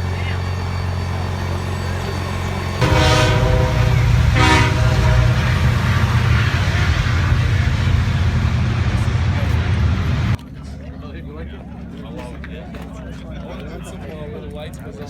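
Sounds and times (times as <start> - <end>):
horn blasts: 0.0 - 10.4
engine rumbling: 0.0 - 15.0.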